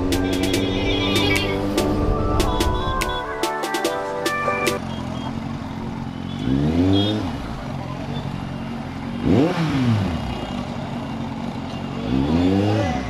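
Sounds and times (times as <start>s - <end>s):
motorcycle engine revving: 0.0s - 2.1s, 4.8s - 13.0s.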